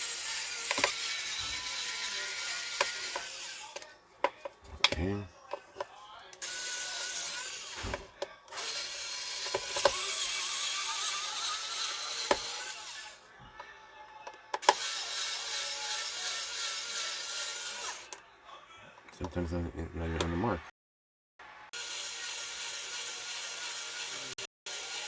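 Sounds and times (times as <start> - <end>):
electric screwdriver whining: 0.0 - 3.9, 6.4 - 13.2, 14.5 - 18.2, 21.8 - 25.0.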